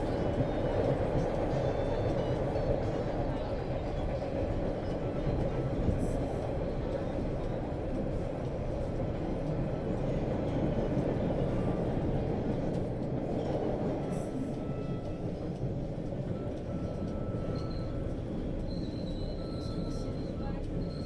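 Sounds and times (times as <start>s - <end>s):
subway train wheels rumbling: 0.0s - 21.0s.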